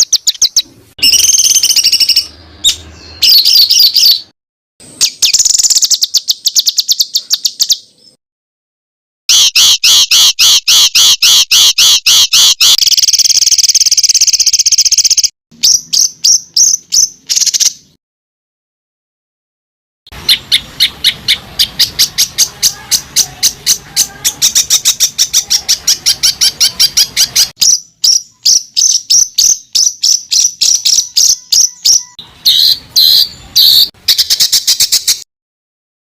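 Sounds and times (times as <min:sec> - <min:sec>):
rapid songbird notes: 0:00.0 - 0:04.3, 0:05.0 - 0:08.2, 0:20.1 - 0:35.2.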